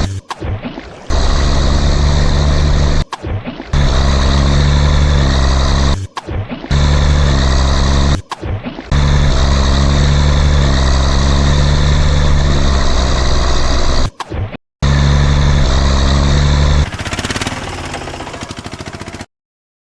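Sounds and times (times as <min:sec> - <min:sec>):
tractor engine running: 0:16.2 - 0:19.3
fast rattling buzz: 0:16.4 - 0:19.3.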